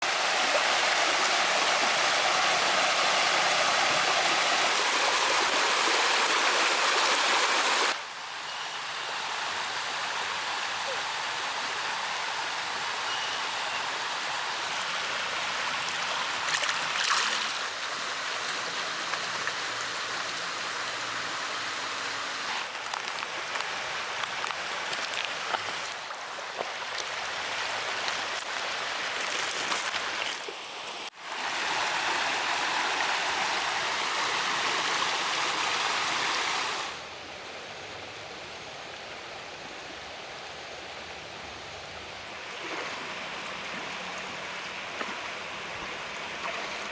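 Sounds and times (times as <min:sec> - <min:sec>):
running water rushing: 0:00.0 - 0:37.0, 0:42.3 - 0:46.9
small water splashes: 0:15.8 - 0:19.7.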